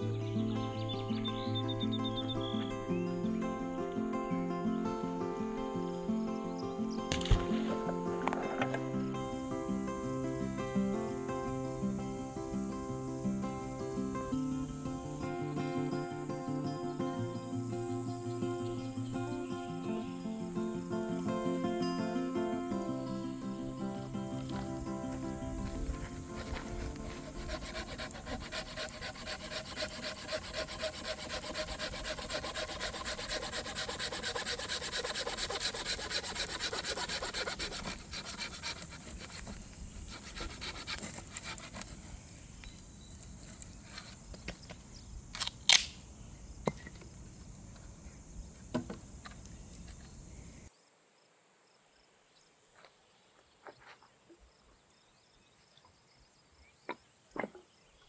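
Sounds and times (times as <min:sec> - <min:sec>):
fast rasping strokes: 0:25.9 - 0:42.2.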